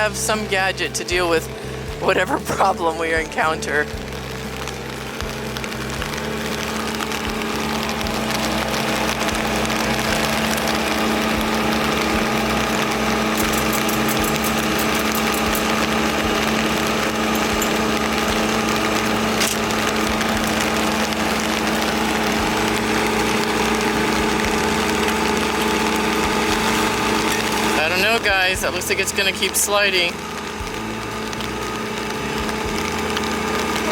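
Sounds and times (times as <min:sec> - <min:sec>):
machine engine running: 0:00.0 - 0:33.9.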